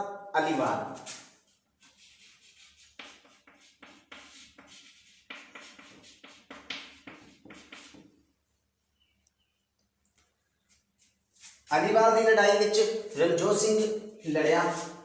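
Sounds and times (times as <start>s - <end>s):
pen scratching on paper: 1.8s - 8.0s.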